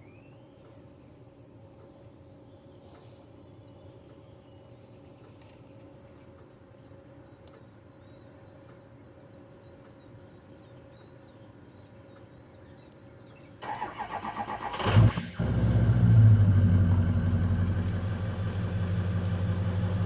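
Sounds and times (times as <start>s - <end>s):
small birds chirping: 0.0s - 13.6s, 16.8s - 20.0s
steady low hum: 15.3s - 20.0s.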